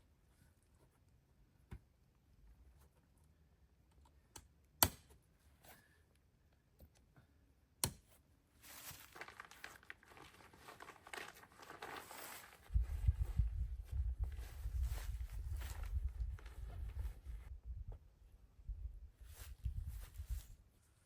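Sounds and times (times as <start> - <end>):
crinkling material handled: 8.6 - 17.5.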